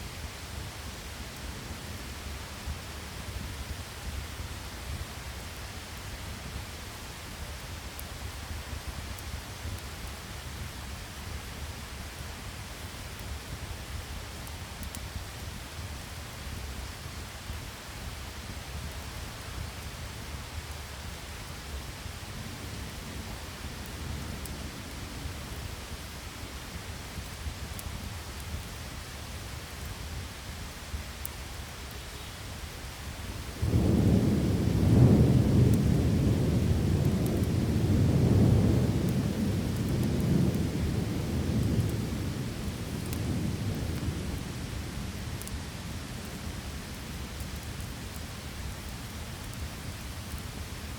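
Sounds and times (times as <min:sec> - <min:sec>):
rain hissing: 0:00.0 - 0:50.9
rolling thunder: 0:33.5 - 0:44.5.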